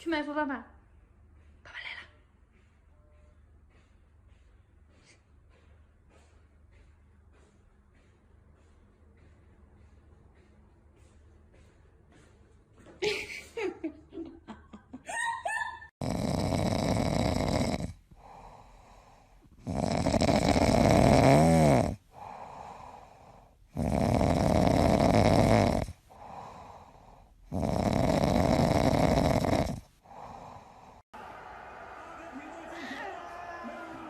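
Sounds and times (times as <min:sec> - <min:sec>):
person snoring: 0:16.0 - 0:31.0
breathing out: 0:22.1 - 0:23.6.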